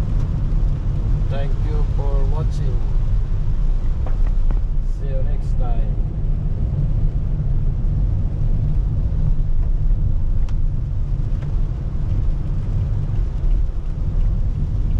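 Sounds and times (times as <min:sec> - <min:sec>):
car driving on wet road: 0:00.0 - 0:14.9
light ticks: 0:09.6 - 0:14.9.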